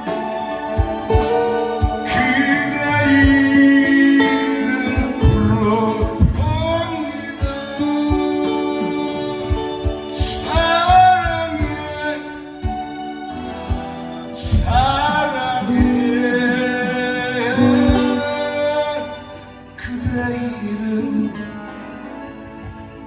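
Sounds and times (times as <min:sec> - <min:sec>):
instrumental accompaniment: 0:00.0 - 0:23.0
person singing a ballad: 0:00.0 - 0:23.0
low drum hits: 0:05.0 - 0:07.0.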